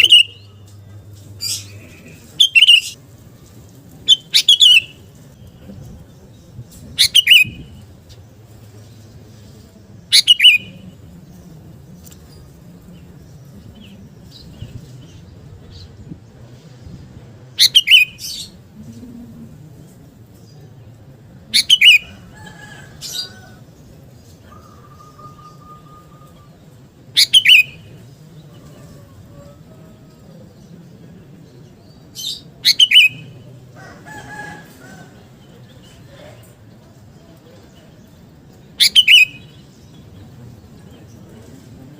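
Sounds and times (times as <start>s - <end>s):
bulbul singing: 0.0s - 5.7s, 10.1s - 15.8s, 24.5s - 33.5s, 38.4s - 41.3s.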